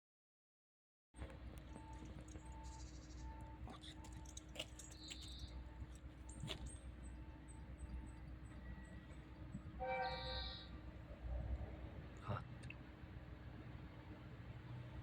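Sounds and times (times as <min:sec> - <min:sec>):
train horn blast: 0:09.7 - 0:10.8.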